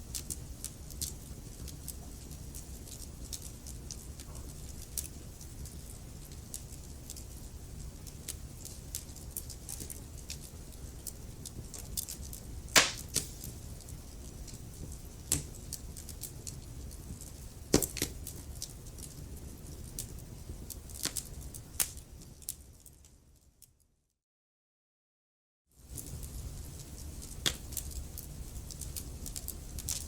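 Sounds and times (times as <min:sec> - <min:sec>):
low rumble of flames: 0:00.0 - 0:23.4, 0:25.8 - 0:30.0
fire pops and snaps: 0:07.8 - 0:23.0, 0:25.9 - 0:30.0.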